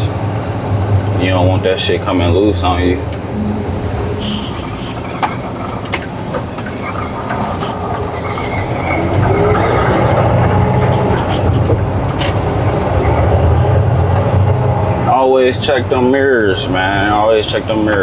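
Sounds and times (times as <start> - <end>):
diesel truck engine rumbling: 0.0 - 18.0
clicks and clatter: 3.1 - 13.5.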